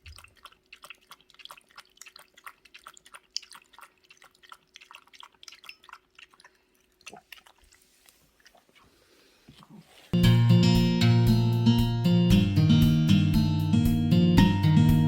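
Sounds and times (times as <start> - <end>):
dog lapping water: 0.0 - 10.1.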